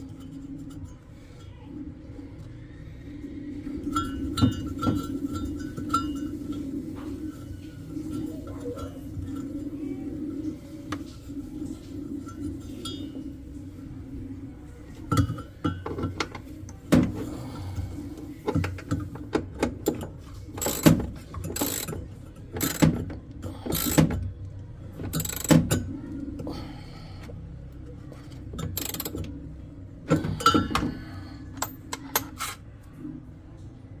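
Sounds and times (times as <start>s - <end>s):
low steady hum: 0.0s - 34.0s
tools and parts clicking: 18.5s - 24.3s, 25.0s - 25.8s, 28.5s - 29.4s, 31.6s - 32.6s.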